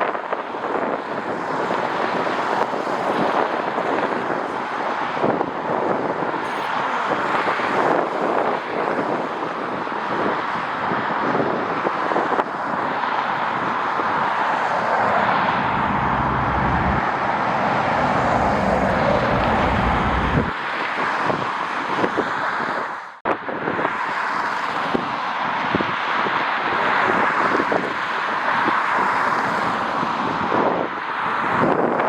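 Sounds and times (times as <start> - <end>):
wind buffeting microphone: 0.0 - 24.0
jet airliner engine rushing: 14.7 - 20.6.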